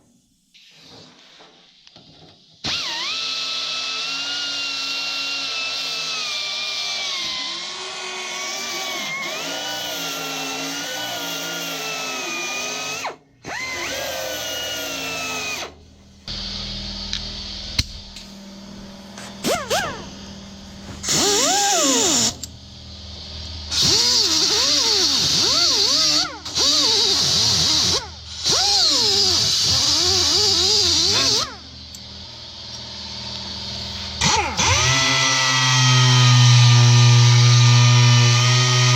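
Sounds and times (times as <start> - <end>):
electric grinder grinding metal: 7.0 - 15.7, 20.9 - 22.5, 23.7 - 31.6, 32.8 - 38.9.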